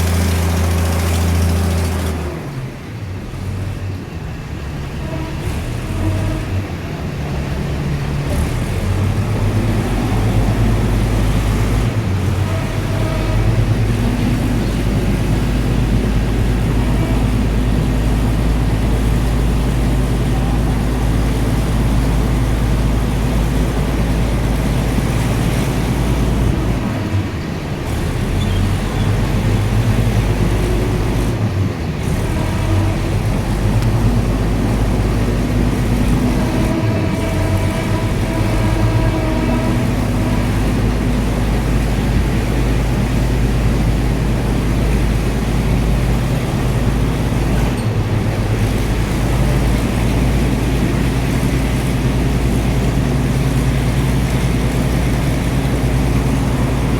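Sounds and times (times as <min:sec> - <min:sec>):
passenger train rumbling drone: 0:00.0 - 0:56.9
track running noise: 0:00.0 - 0:56.9.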